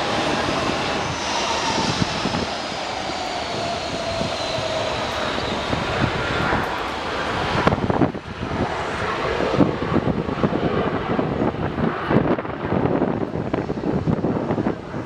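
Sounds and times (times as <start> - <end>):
jet engine rush with high whine: 0.0 - 15.0
wind buffeting microphone: 0.0 - 15.0.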